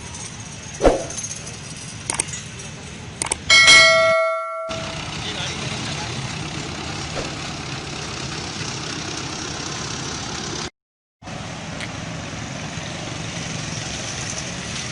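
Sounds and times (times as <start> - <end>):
engine running: 0.0 - 14.9
street noise: 0.0 - 14.9.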